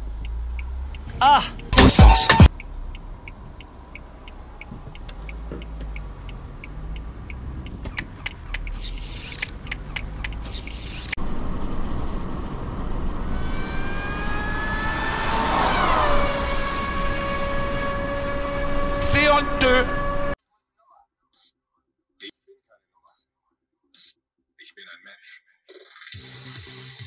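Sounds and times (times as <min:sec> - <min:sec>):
steady ticking: 0:00.0 - 0:10.8
road and engine rumble: 0:00.0 - 0:20.4
rising tones: 0:01.6 - 0:02.5, 0:09.6 - 0:20.4
sharp clicks: 0:01.8 - 0:11.2.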